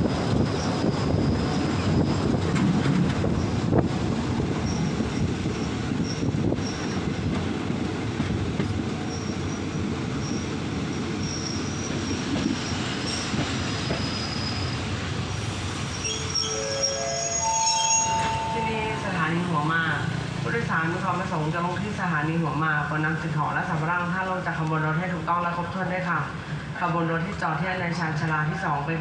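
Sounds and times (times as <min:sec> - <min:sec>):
train wheels rumbling on track: 0:00.0 - 0:29.0
high wheel squeal: 0:11.2 - 0:14.8, 0:15.8 - 0:18.9.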